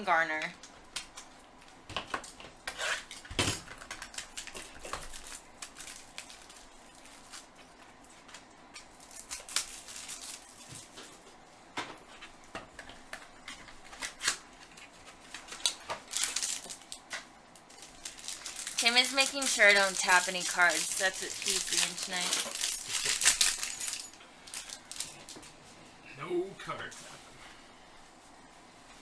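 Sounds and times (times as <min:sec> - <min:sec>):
trading cards clicking and rustling: 0:12.6 - 0:25.5.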